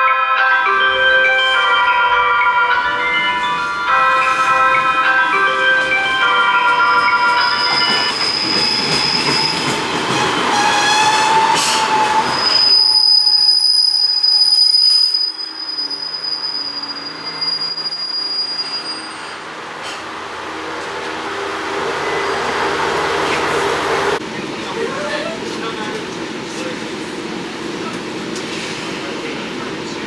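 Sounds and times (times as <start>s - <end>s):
high wheel squeal: 0.0s - 20.0s
railcar rumbling on rails: 0.0s - 30.0s.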